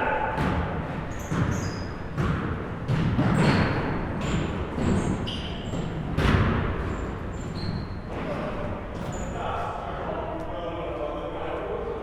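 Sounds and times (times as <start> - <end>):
basketballs bouncing on gym floor: 0.4 - 7.5.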